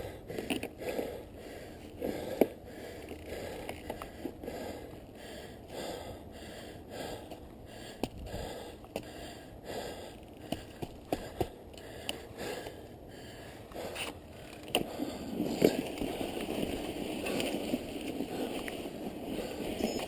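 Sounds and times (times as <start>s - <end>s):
person breathing hard: 0.0s - 15.4s.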